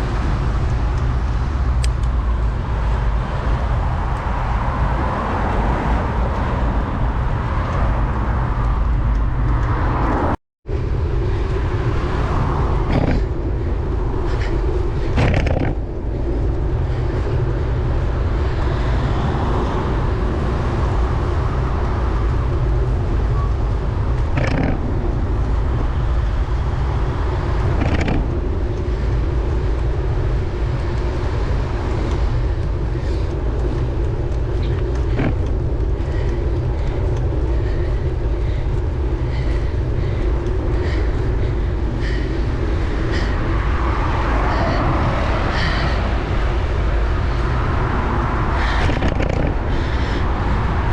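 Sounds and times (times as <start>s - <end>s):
traffic noise: 0.0s - 50.9s
wind rumble on microphone: 0.0s - 50.9s.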